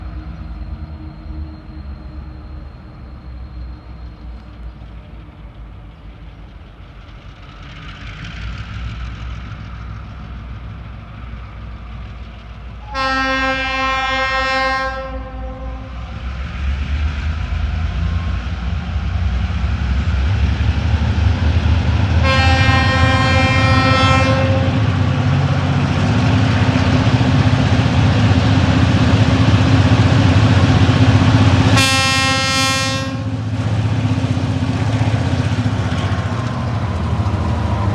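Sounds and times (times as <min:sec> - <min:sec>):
diesel locomotive engine rumble: 0:00.0 - 0:37.9
locomotive horn blasts: 0:12.8 - 0:16.1, 0:22.2 - 0:24.9, 0:31.6 - 0:33.4.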